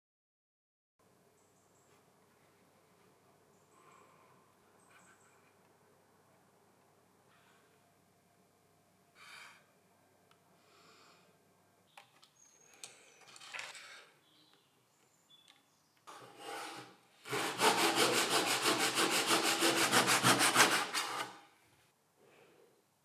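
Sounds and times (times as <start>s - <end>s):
hand saw cutting wood: 16.1s - 21.5s.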